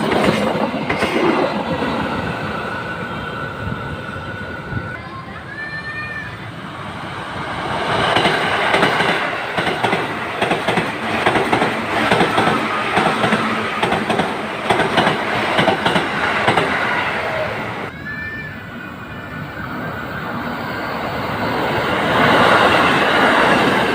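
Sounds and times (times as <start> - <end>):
train wheels clacking on rails: 0.0 - 2.4, 7.7 - 17.4.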